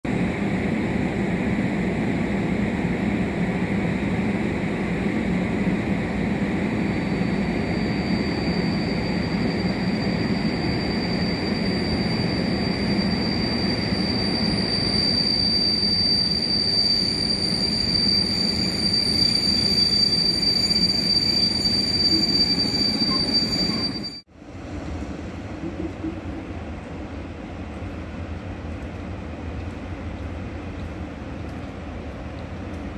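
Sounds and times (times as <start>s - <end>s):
train wheels rumbling on rails: 0.0s - 32.9s
high-pitched train squeal: 1.6s - 24.3s.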